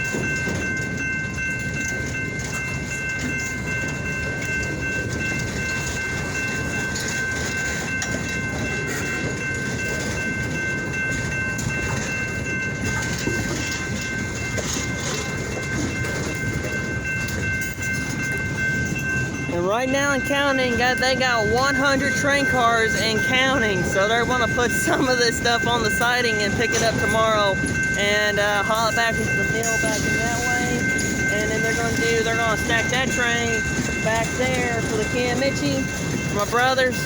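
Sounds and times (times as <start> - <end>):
railroad cars clanking: 0.0 - 37.0
train wheels rumbling on rails: 0.0 - 37.0
high-pitched tones: 17.6 - 37.0.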